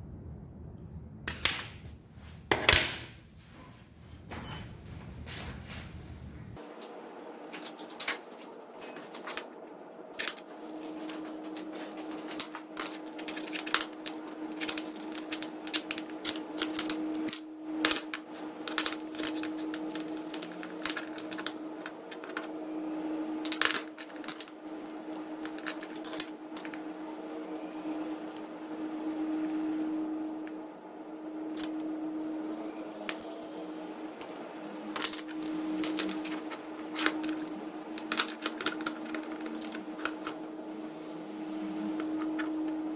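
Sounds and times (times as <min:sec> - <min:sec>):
steady hum: 0:00.0 - 0:42.9
small metal parts clinking: 0:07.5 - 0:09.5, 0:10.1 - 0:22.5, 0:23.4 - 0:30.6, 0:31.4 - 0:32.1, 0:33.0 - 0:40.9, 0:41.6 - 0:42.9.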